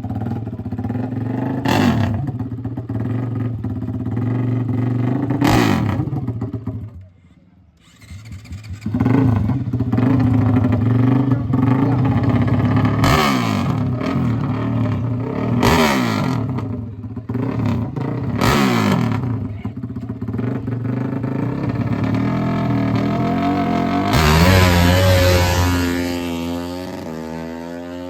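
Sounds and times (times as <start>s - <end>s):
motorcycle engine running: 0.0s - 7.1s, 7.8s - 28.0s
engine throttle blips: 21.0s - 27.1s.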